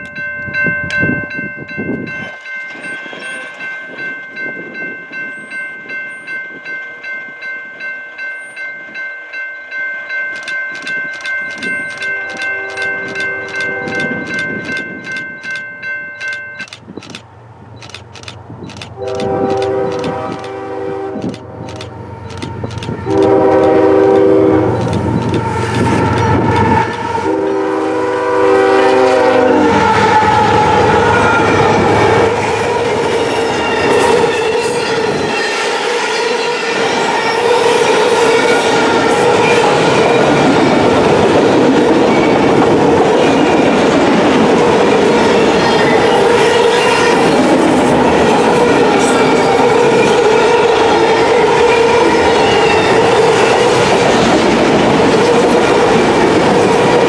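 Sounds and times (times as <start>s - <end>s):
crossing warning bell ringing: 0.0s - 57.0s
train wheels rumbling and clacking: 10.3s - 28.2s, 28.8s - 57.0s
locomotive horn blasts: 12.0s - 14.3s, 19.0s - 21.4s, 22.9s - 32.8s.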